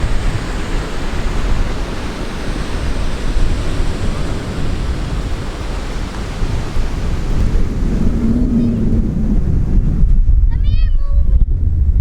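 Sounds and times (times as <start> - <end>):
ocean surf: 0.0 - 10.2
wind buffeting microphone: 0.0 - 12.0
low rumble: 3.5 - 12.0.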